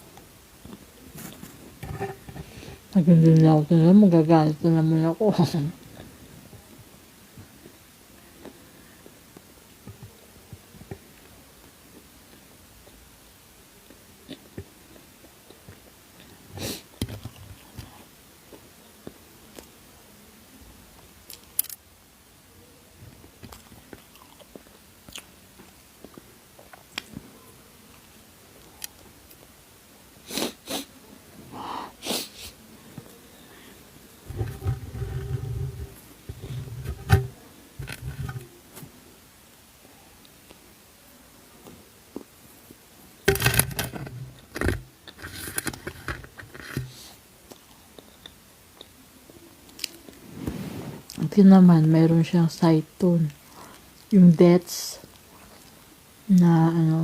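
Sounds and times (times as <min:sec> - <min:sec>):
person chewing crunchy food: 0:23.5 - 0:25.3.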